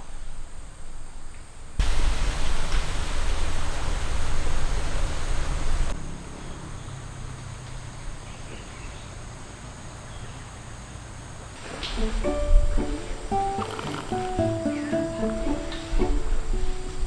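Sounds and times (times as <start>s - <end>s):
faint insect chirps: 0.0s - 17.0s
river water rushing: 1.8s - 6.0s, 11.6s - 17.0s.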